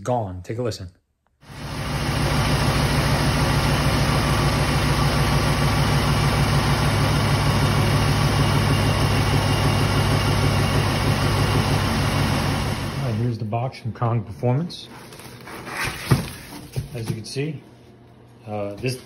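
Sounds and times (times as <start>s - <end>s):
car engine idling: 1.5s - 13.2s.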